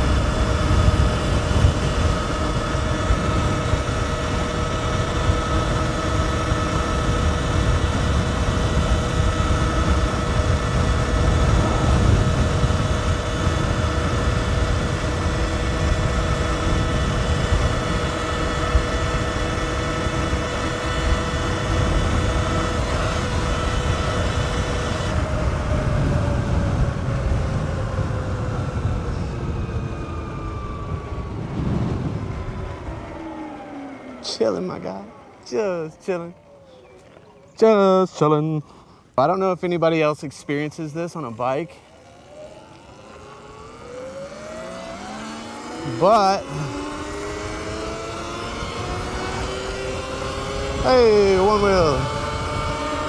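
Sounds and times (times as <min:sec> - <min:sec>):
wind on microphone: 0:00.0 - 0:33.8, 0:45.5 - 0:53.0
electric motor whining: 0:00.0 - 0:53.0.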